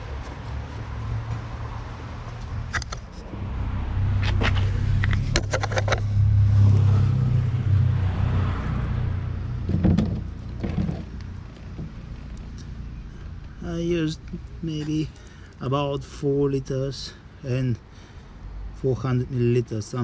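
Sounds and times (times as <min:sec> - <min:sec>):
car engine running: 0:03.2 - 0:07.0.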